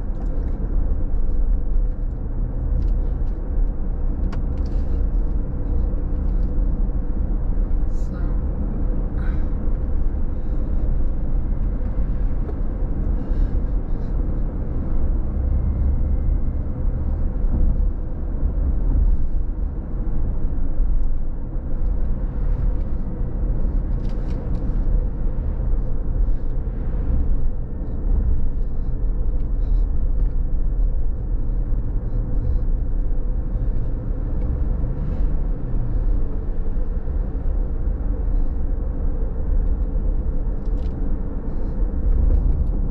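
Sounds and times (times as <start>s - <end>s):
car tyres and engine rumbling: 0.0s - 42.9s
faint steady hum: 0.0s - 42.9s.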